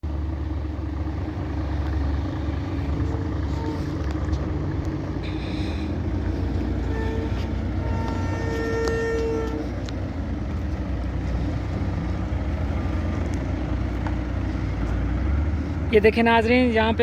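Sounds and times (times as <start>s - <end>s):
heavy vehicle engine rumbling: 0.0s - 17.0s
horn blasts: 3.4s - 4.2s, 5.2s - 10.0s.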